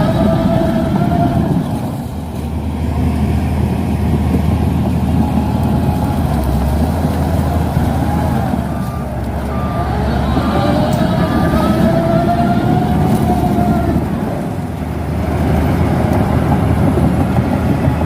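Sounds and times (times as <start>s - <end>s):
bulldozer diesel engine rumbling: 0.0s - 18.0s
short high beeps: 8.7s - 9.9s.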